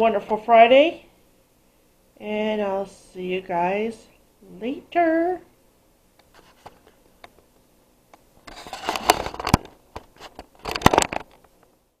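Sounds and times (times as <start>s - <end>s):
rubbing and scraping: 6.3s - 7.0s, 8.4s - 11.3s.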